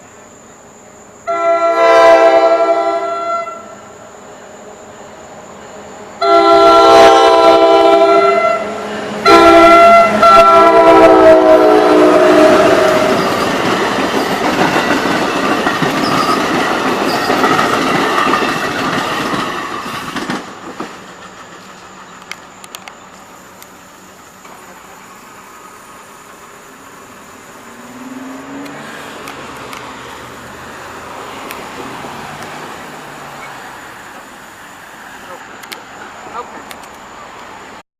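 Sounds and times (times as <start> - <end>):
train wheel and rail noise: 0.0 - 37.8
train horn: 1.2 - 3.8, 6.2 - 13.5.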